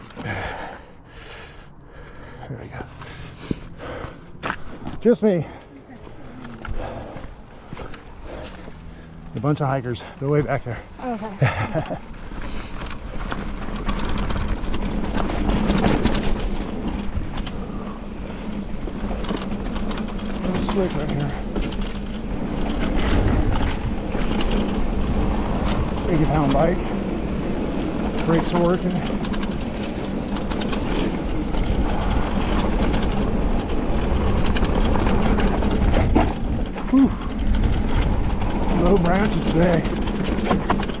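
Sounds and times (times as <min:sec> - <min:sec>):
wind buffeting microphone: 0:00.0 - 0:41.0
bike clattering over rocks: 0:03.1 - 0:41.0
clicks and rattles: 0:09.4 - 0:41.0.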